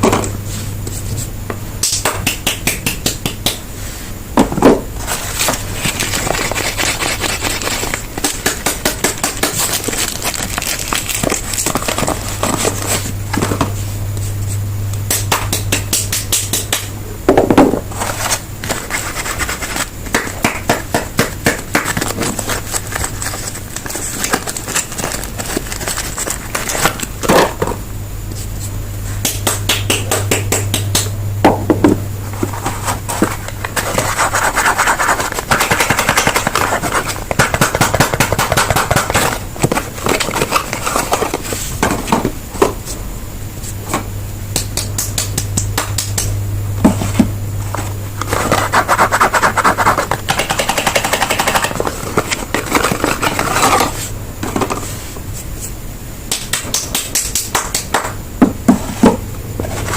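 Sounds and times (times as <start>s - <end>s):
wrappers and boxes crinkling: 5.0s - 13.1s, 21.8s - 27.1s.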